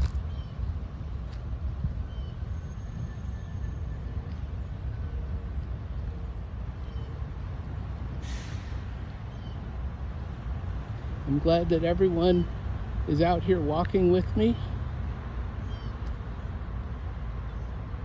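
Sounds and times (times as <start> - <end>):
low rumble of traffic: 0.0 - 18.0
brief hiss: 8.2 - 8.9.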